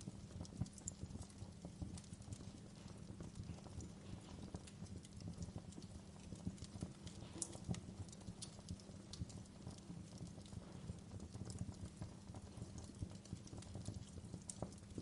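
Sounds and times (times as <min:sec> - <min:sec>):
low rumble of burning logs: 0:00.0 - 0:15.0
wood fire crackling: 0:00.0 - 0:15.0.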